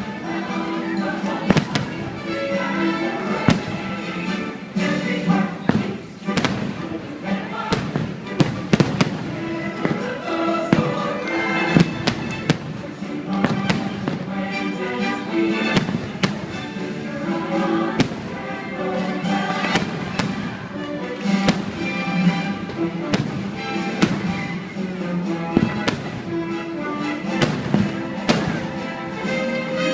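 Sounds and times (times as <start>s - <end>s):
music playing: 0.0s - 29.9s
fireworks bangs: 1.4s - 2.2s, 3.3s - 4.0s, 5.6s - 14.5s, 15.6s - 16.8s, 17.7s - 24.8s, 25.4s - 29.5s.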